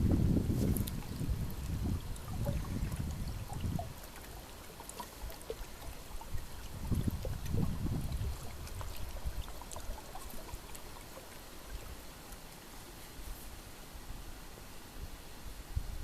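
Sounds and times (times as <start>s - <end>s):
wind gusting over microphone: 0.0s - 4.1s, 5.8s - 9.6s
small stream trickling: 0.0s - 15.4s.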